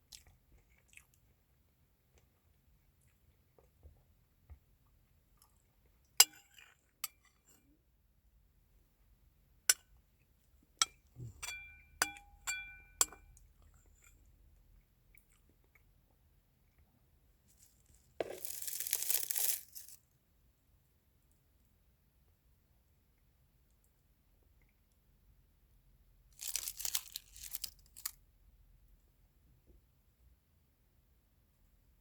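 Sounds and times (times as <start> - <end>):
rustling crinkling: 17.5 - 20.0, 26.4 - 28.1.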